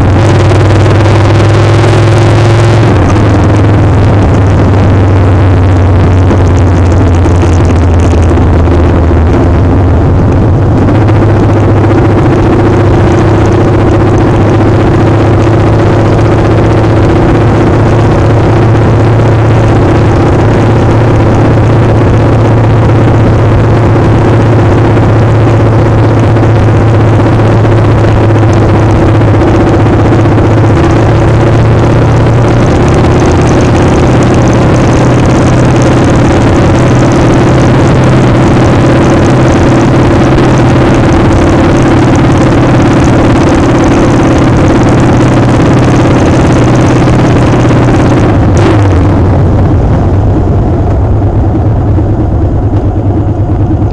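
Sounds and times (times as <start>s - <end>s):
motorcycle engine running: 0.0s - 53.9s
wind rush on microphone: 0.0s - 53.9s.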